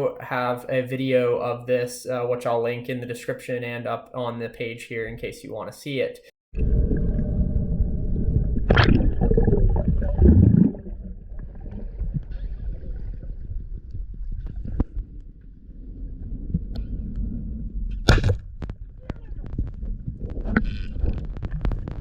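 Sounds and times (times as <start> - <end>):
underwater rumbling and gurgling: 6.5 - 22.0.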